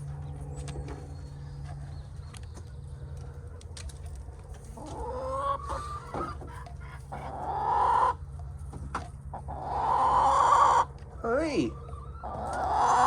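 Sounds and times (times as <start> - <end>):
chicken calling: 4.6 - 8.4, 9.2 - 13.0.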